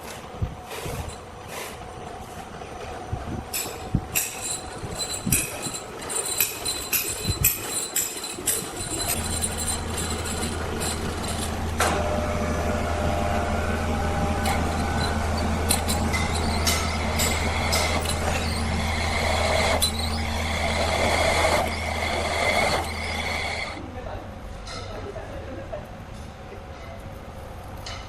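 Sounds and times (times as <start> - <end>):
engine running: 2.8 - 23.8
metallic clanks of machinery: 3.5 - 12.2, 14.2 - 23.8.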